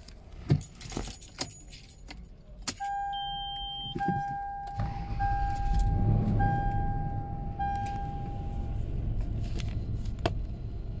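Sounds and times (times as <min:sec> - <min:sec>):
car engine starting and idling: 0:02.5 - 0:11.0
warning chime beeps: 0:02.8 - 0:08.8.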